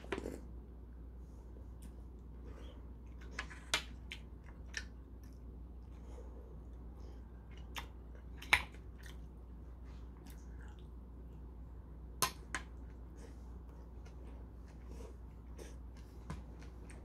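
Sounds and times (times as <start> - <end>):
chewing: 7.4 - 9.3, 10.0 - 11.0.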